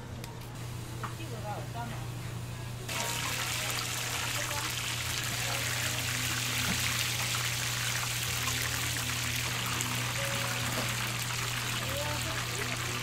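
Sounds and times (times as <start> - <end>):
food sizzling in hot oil: 2.9 - 13.0.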